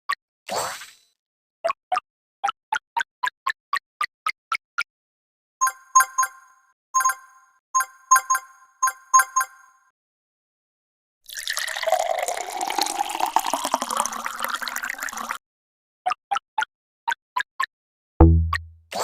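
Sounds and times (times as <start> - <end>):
liquid pouring and splashing: 11.3 - 15.4.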